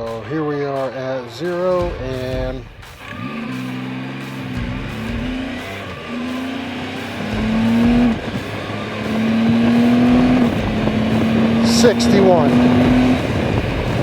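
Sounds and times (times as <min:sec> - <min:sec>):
engine accelerating hard: 0:02.9 - 0:14.0.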